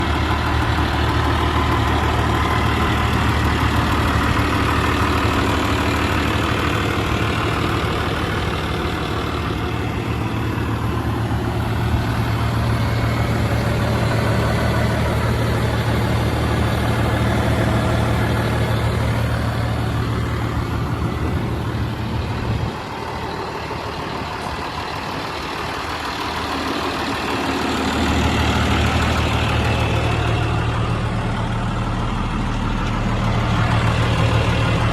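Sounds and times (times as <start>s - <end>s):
tractor engine idling: 0.0s - 34.9s.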